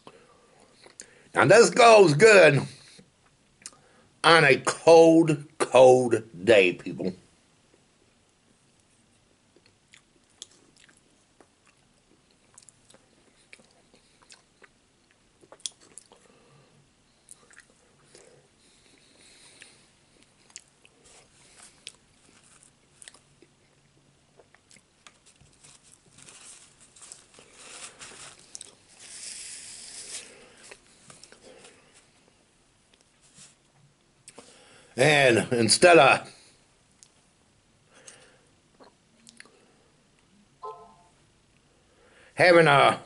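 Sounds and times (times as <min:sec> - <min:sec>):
man chewing wetly: 0:09.5 - 0:16.5, 0:17.2 - 0:26.1, 0:28.4 - 0:29.6, 0:38.1 - 0:39.6.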